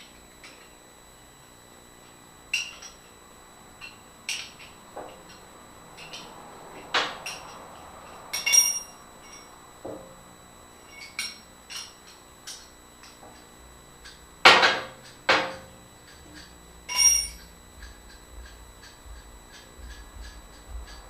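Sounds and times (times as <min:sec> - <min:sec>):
ringing metal clang: 0:08.3 - 0:09.6, 0:10.8 - 0:13.5, 0:14.1 - 0:21.0
steel tools clinking and knocking: 0:14.1 - 0:21.0.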